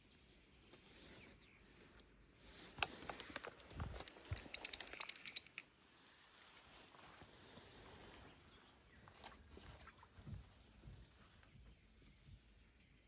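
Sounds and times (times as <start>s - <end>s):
rattling clicks: 2.8s - 5.7s.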